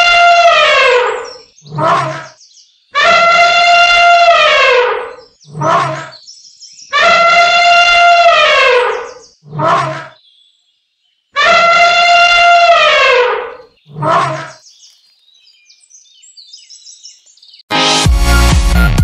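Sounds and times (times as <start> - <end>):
elephant trumpeting: 0.0 - 2.3, 3.0 - 6.1, 6.9 - 10.2, 11.4 - 14.6.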